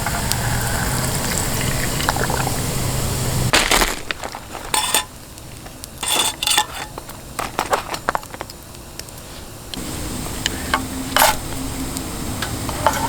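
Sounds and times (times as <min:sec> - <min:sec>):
metal cookware clattering: 0:04.0 - 0:05.2, 0:05.8 - 0:08.3, 0:10.8 - 0:11.5, 0:12.4 - 0:13.0.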